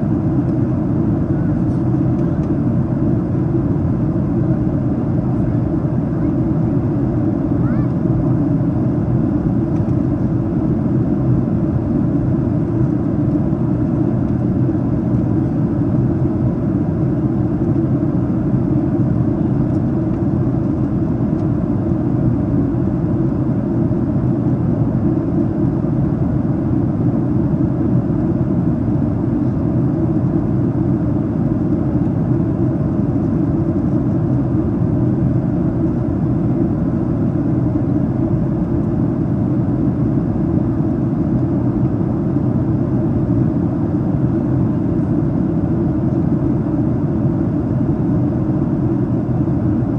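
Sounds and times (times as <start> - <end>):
airplane cabin roar: 0.0 - 49.9.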